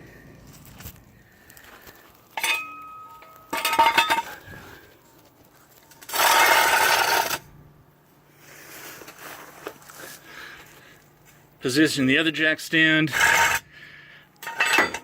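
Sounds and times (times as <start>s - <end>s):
metal clank with ring: 2.4s - 4.3s, 14.4s - 15.0s
harsh metal scraping: 6.0s - 7.5s, 13.0s - 13.7s.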